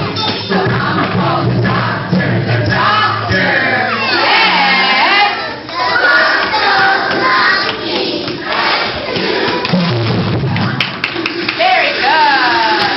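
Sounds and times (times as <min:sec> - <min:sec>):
music: 0:00.0 - 0:04.0, 0:08.5 - 0:12.9
children singing and shouting: 0:00.0 - 0:12.9.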